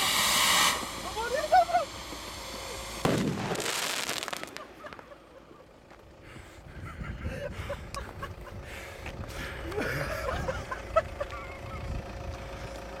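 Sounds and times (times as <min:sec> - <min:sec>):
fireworks popping and crackling: 0:00.0 - 0:05.4
loud firework bang: 0:02.0 - 0:05.2.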